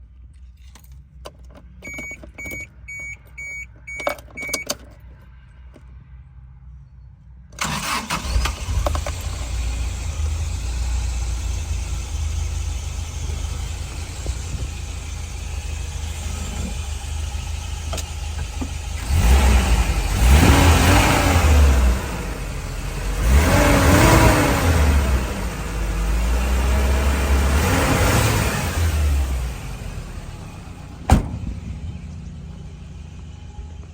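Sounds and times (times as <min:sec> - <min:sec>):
short beeps: 0:01.8 - 0:04.7
engine revving: 0:07.6 - 0:33.9
van engine starting and idling: 0:07.6 - 0:33.9.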